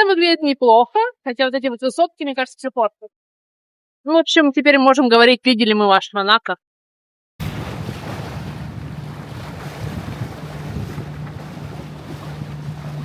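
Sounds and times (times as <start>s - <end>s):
boat engine humming: 7.4s - 13.0s
water around hull: 7.4s - 13.0s
wind buffeting microphone: 7.4s - 13.0s.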